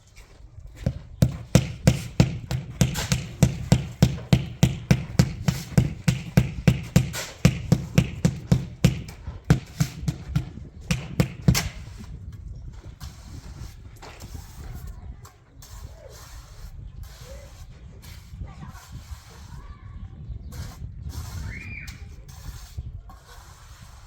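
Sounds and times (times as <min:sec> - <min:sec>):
rhythmic thudding: 0:00.8 - 0:12.0.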